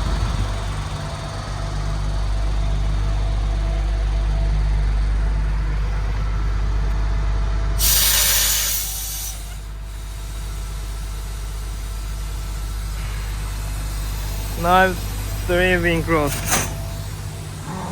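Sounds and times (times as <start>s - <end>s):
truck diesel engine idling: 0.0s - 17.9s
air brake hiss: 7.8s - 10.2s.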